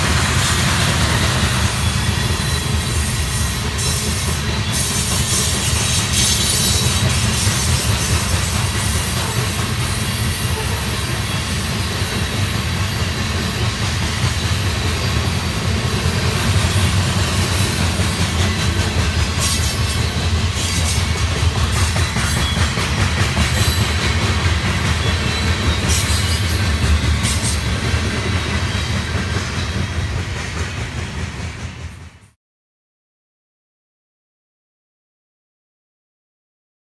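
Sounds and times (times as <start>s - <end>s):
freight train low rumble: 0.0s - 32.4s
wheels clacking on rails: 0.0s - 32.4s.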